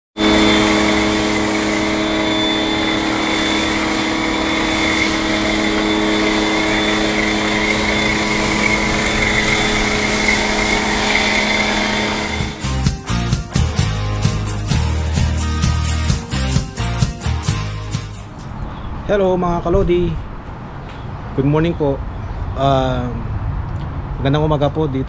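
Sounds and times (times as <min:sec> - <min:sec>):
machine humming with whine: 0:00.2 - 0:12.6.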